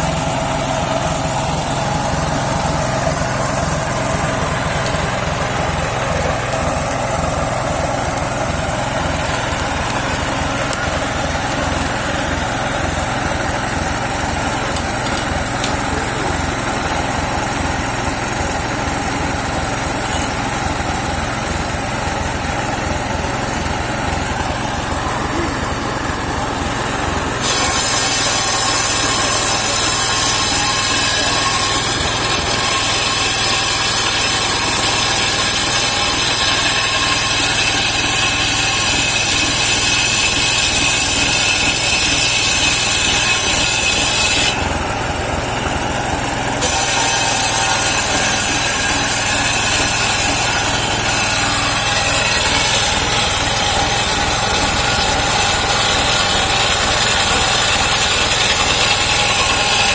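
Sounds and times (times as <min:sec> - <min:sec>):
engine humming: 0:00.0 - 0:28.2
saw blade whining in wood: 0:00.0 - 0:59.9.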